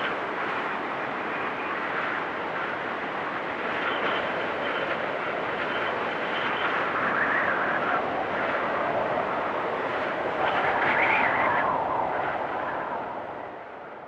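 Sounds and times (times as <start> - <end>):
storm wind gusting and whistling: 0.0 - 14.0.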